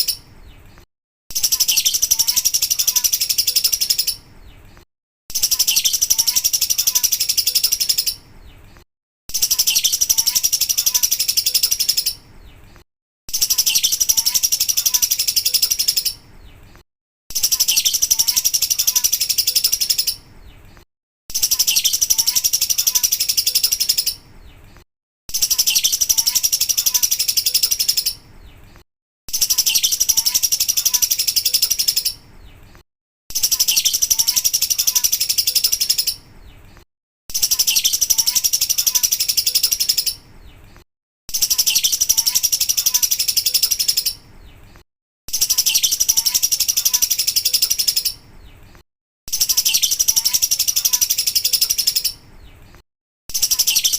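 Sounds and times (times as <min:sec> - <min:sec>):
lovebird chattering trill: 0:01.3 - 0:04.3, 0:05.3 - 0:08.2, 0:09.3 - 0:12.2, 0:13.3 - 0:16.3, 0:17.3 - 0:20.2, 0:21.3 - 0:24.2, 0:25.3 - 0:28.3, 0:29.3 - 0:32.3, 0:33.3 - 0:36.3, 0:37.3 - 0:40.3, 0:41.3 - 0:44.3, 0:45.3 - 0:48.3, 0:49.3 - 0:52.2, 0:53.3 - 0:53.9.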